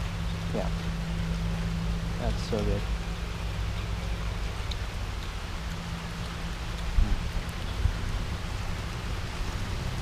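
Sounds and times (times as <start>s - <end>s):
constant low rumble: 0.0s - 10.0s
rain hiss: 0.0s - 10.0s.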